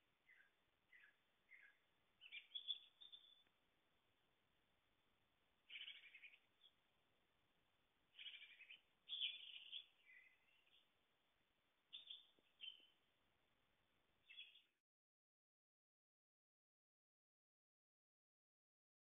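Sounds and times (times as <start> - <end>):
faint bird chirps: 0.0 - 3.6, 5.6 - 6.9, 8.1 - 11.0, 11.9 - 13.1, 14.2 - 14.8.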